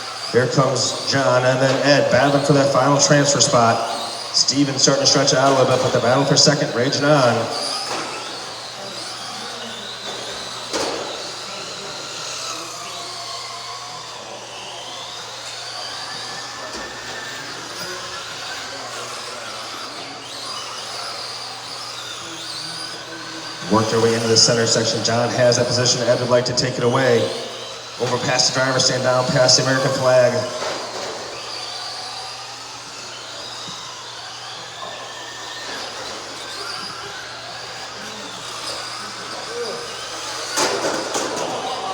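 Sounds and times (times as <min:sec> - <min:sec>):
electric motors whining: 0:00.0 - 0:41.9
tyres hissing: 0:23.4 - 0:30.6.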